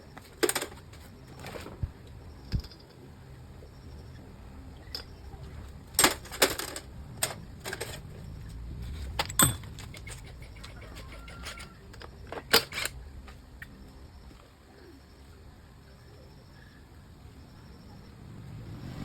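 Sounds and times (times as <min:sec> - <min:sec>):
metal tools clicking and clinking: 0:00.3 - 0:01.6, 0:02.4 - 0:03.0, 0:04.8 - 0:08.2, 0:08.9 - 0:13.0
metallic ring: 0:09.2 - 0:09.8.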